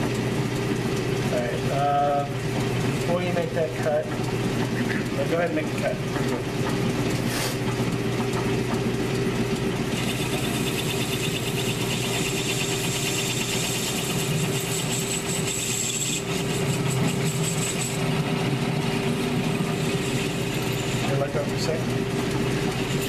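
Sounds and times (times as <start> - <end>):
lathe motor and gear hum: 0.0 - 23.0
cutting tool hissing: 7.2 - 7.7, 9.9 - 21.3.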